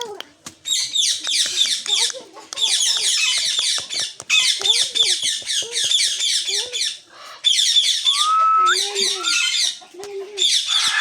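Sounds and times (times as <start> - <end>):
parrot rising whistle: 8.1 - 9.5.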